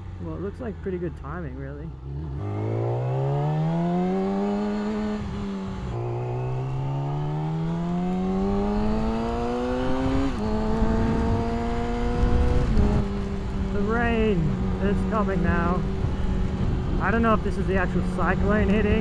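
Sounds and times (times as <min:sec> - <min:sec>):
motorcycle engine accelerating: 0:00.0 - 0:19.0
wind rush: 0:07.6 - 0:19.0.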